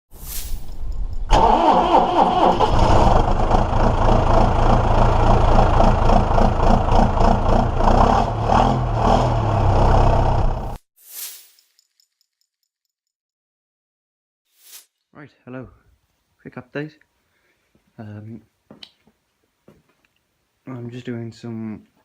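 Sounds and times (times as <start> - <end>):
tractor diesel engine starting: 1.3 - 10.8.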